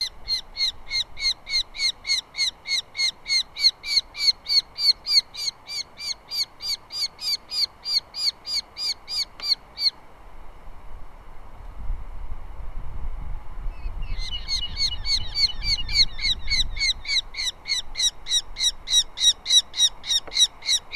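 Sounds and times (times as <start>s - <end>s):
osprey whistled chirps: 13.8s - 20.8s.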